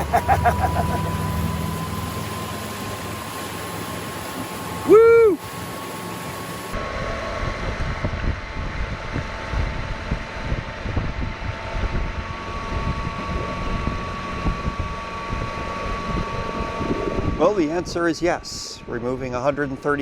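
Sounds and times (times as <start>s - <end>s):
electric outboard motor whine: 0.0s - 20.0s
wind buffeting microphone: 6.8s - 20.0s.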